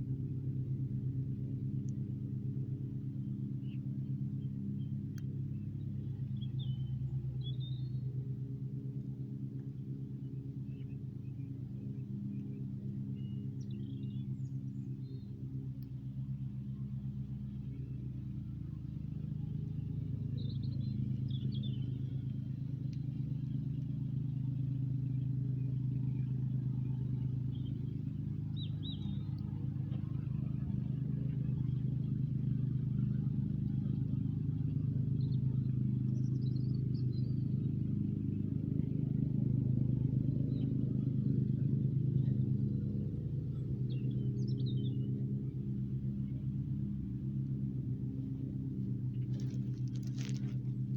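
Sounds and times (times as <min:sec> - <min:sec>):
engine running with deep hum: 0:00.0 - 0:50.9.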